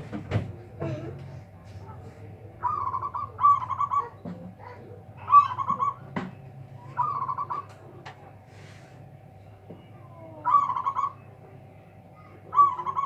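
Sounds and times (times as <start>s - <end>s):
dove cooing: 0.6s - 8.1s, 10.1s - 13.0s.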